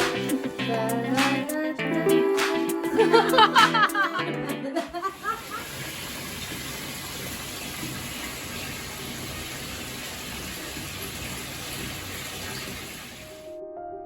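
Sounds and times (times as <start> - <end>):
rushing water: 5.2 - 13.5.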